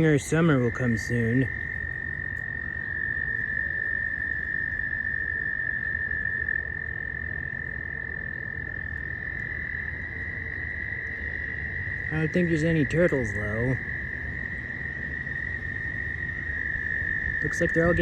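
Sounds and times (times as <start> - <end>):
chorus of frogs trilling: 0.0 - 18.0.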